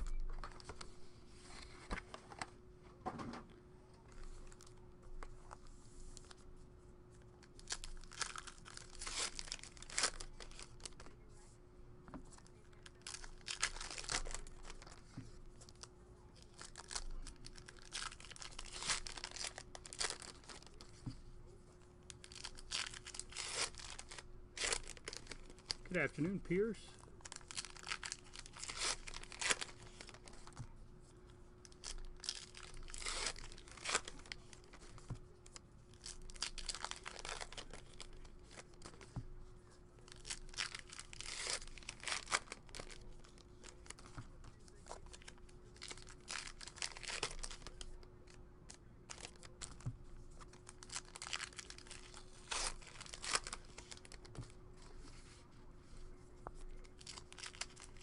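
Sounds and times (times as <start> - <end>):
faint steady hum: 0.0 - 58.0
wrappers tearing and crinkling: 7.5 - 11.0, 12.4 - 15.0, 15.6 - 20.9, 22.1 - 30.6, 31.6 - 35.0, 35.9 - 39.1, 40.1 - 48.1, 48.7 - 49.8, 50.4 - 54.4, 56.6 - 58.0.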